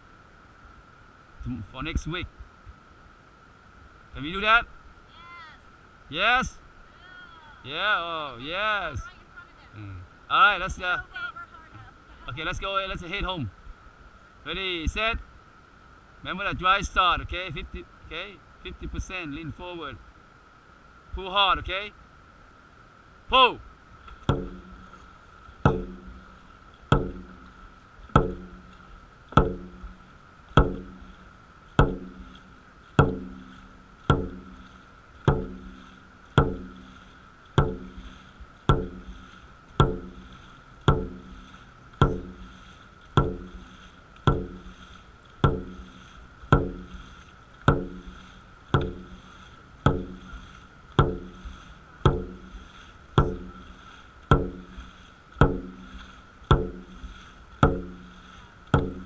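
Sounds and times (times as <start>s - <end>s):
drum beaten at steady pace: 24.3s - 25.0s, 25.6s - 27.5s, 28.1s - 30.0s, 30.6s - 31.2s, 31.8s - 37.0s, 37.6s - 59.0s.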